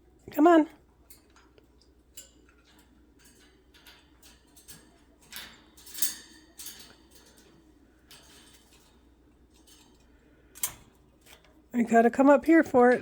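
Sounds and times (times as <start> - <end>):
parrot beak and claws on cage bars: 0.2 - 11.7.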